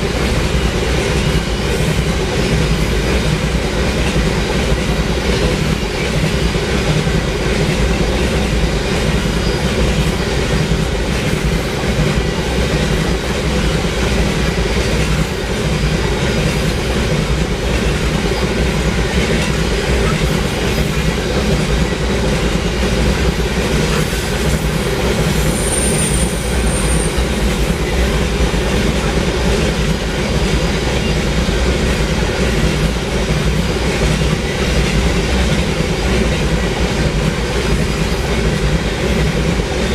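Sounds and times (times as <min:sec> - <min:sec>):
freight train rolling past: 0:00.0 - 0:39.9
high-pitched wheel squeal: 0:25.4 - 0:27.4.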